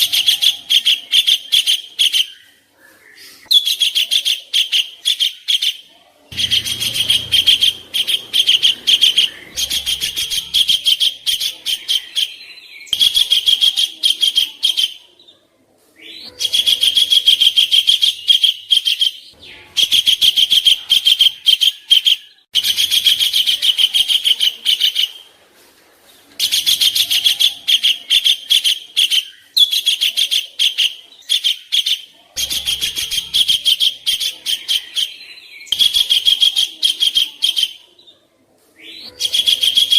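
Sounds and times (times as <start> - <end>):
songbird harsh chatter: 0.0 - 15.0.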